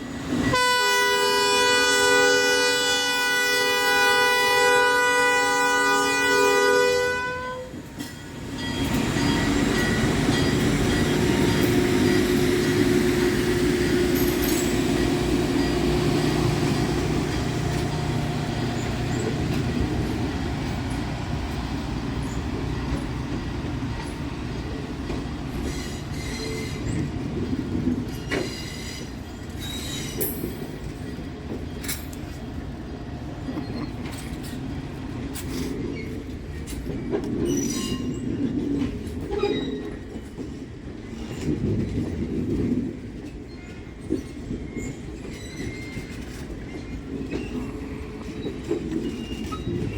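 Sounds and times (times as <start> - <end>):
train cars rumbling past: 0.0 - 49.9
wheels clacking over rail joints: 7.7 - 49.9
high wheel squeals: 25.6 - 27.1, 43.4 - 49.9.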